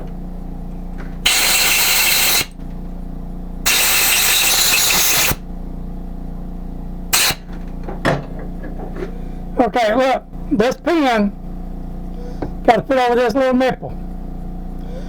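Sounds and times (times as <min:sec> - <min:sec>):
compressed air blow gun blasting: 0:01.2 - 0:02.6, 0:03.7 - 0:05.4, 0:07.1 - 0:07.5.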